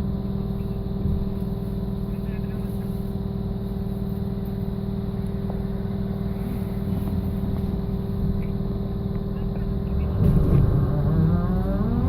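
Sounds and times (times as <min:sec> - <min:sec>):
low rumble: 0:06.4 - 0:12.0.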